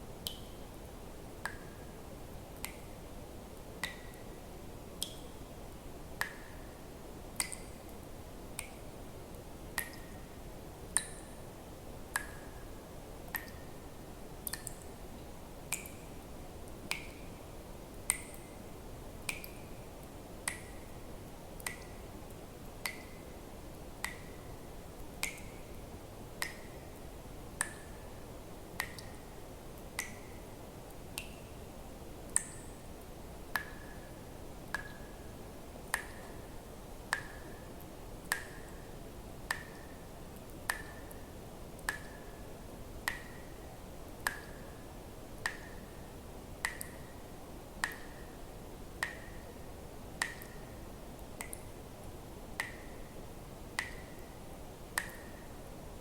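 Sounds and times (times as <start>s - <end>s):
faint steady hiss: 0.0s - 56.0s
water drops plinking into water: 0.2s - 0.6s, 2.5s - 2.9s, 3.8s - 4.3s, 5.0s - 5.3s, 7.4s - 8.8s, 9.8s - 11.4s, 12.1s - 12.6s, 13.3s - 13.7s, 14.4s - 14.9s, 15.7s - 16.2s, 16.9s - 17.4s, 18.1s - 18.6s, 19.2s - 19.8s, 20.4s - 21.0s, 21.6s - 22.1s, 22.8s - 23.2s, 24.0s - 24.4s, 25.2s - 25.8s, 26.4s - 27.0s, 27.6s - 28.0s, 28.8s - 29.3s, 30.0s - 30.4s, 33.6s - 34.1s, 34.7s - 35.2s, 35.8s - 36.4s, 37.1s - 37.6s, 38.2s - 38.8s, 39.5s - 41.2s, 41.8s - 42.4s, 43.0s - 43.5s, 44.2s - 44.6s, 46.6s - 47.1s, 47.8s - 48.2s, 49.0s - 49.4s, 50.2s - 50.7s, 51.4s - 51.7s, 52.6s - 53.0s, 53.8s - 54.2s, 55.0s - 55.4s.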